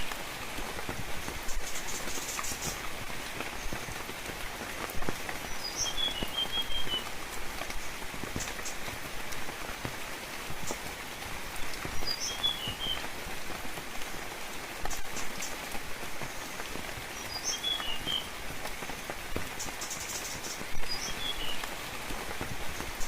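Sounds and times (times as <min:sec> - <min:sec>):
rain patter: 0:00.0 - 0:23.0
bird chirping: 0:05.5 - 0:07.0, 0:12.0 - 0:13.0, 0:17.2 - 0:18.3, 0:19.6 - 0:21.6.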